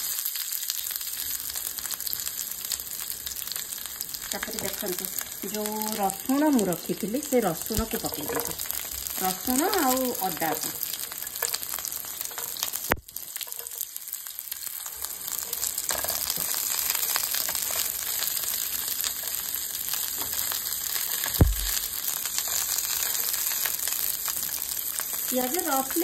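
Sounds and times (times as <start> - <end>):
food sizzling in oil: 0.0 - 26.0
knock: 21.4 - 21.8.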